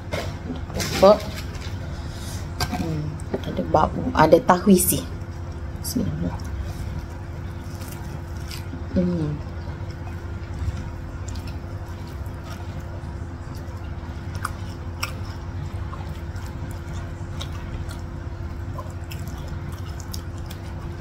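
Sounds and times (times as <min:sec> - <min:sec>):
low hum: 0:00.0 - 0:21.0
person chewing: 0:05.2 - 0:21.0.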